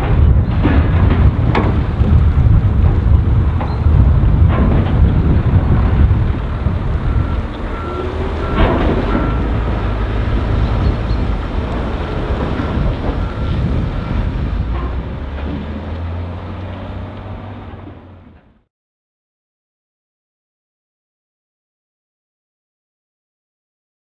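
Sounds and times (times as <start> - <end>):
clattering: 0.0 - 18.5
diesel engine running: 0.0 - 18.7.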